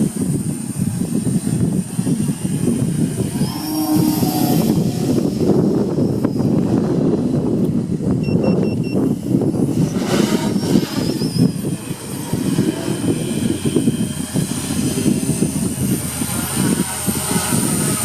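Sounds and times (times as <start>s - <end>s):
thin high whine: 0.0s - 18.0s
wind buffeting microphone: 0.0s - 18.0s.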